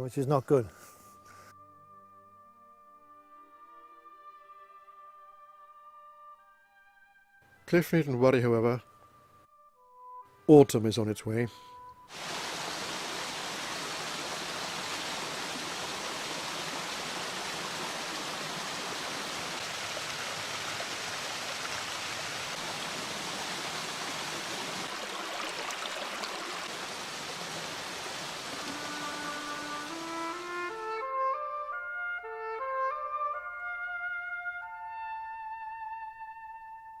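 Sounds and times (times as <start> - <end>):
stream water rushing: 12.1 - 31.0.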